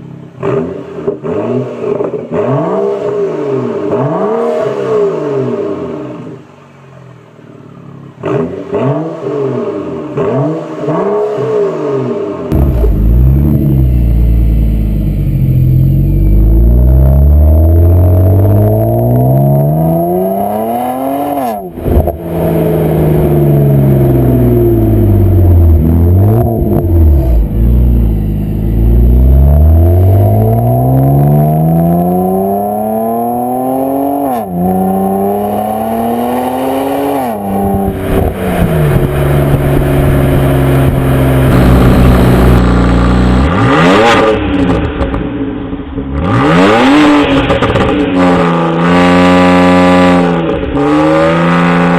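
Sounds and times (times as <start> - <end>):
car engine accelerating through gears: 0.4 - 6.4, 8.2 - 51.9.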